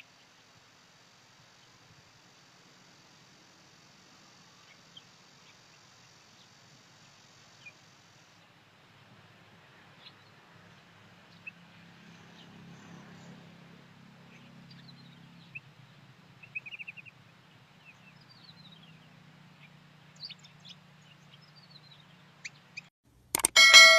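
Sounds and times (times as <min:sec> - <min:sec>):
small birds chirping: 0:04.3 - 0:08.0, 0:14.2 - 0:22.9.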